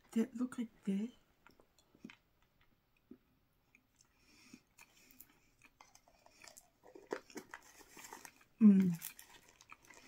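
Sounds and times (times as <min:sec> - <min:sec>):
chewing crunchy cookie: 0:01.4 - 0:10.0.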